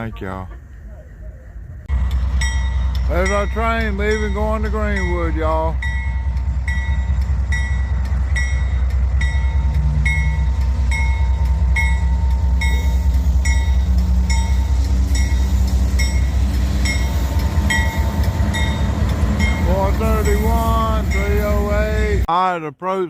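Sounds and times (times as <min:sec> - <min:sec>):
diesel locomotive engines rumbling: 0:00.0 - 0:22.3
locomotive bell ringing: 0:01.9 - 0:22.3.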